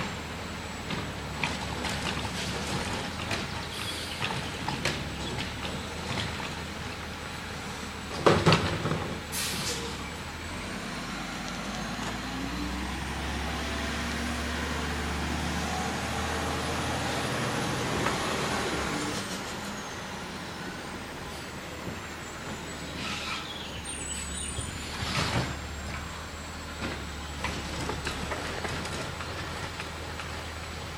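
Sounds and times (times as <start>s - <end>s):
garbage truck engine: 0.0s - 30.9s
air hiss: 9.3s - 9.9s.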